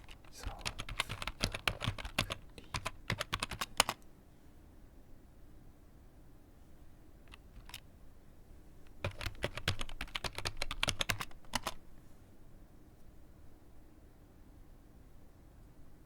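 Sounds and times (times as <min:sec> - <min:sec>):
computer keyboard typing: 0:00.0 - 0:04.0, 0:07.3 - 0:07.8, 0:08.9 - 0:11.8.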